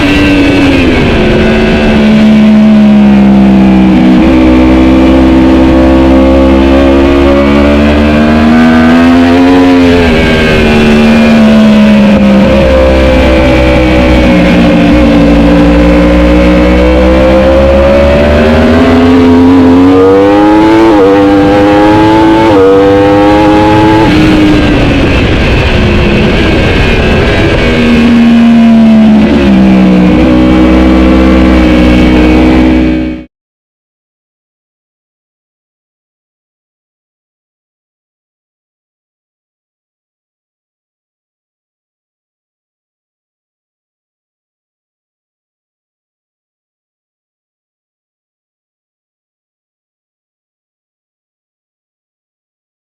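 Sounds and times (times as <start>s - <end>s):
motorcycle engine revving: 0.0s - 33.3s.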